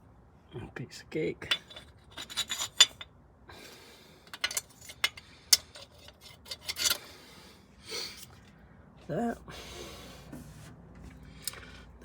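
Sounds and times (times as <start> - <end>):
scraping and rubbing on metal: 1.5 - 3.0, 4.3 - 7.0.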